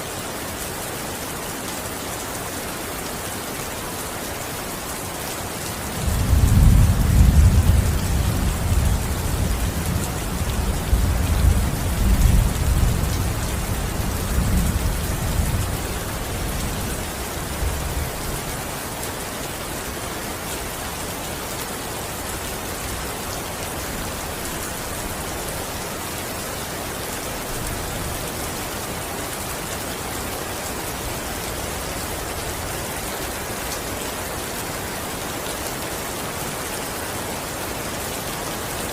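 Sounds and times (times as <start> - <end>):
steady rain: 0.0 - 38.9
thunder rumbling: 6.0 - 15.6.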